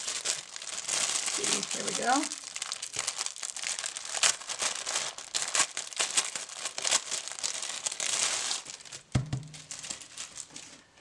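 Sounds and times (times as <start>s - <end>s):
packaging crinkling: 0.0s - 10.8s.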